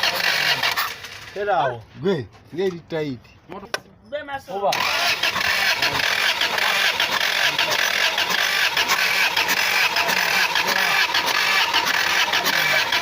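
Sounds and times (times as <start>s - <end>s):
engine running with busy clatter: 0.0s - 1.6s, 4.7s - 13.0s.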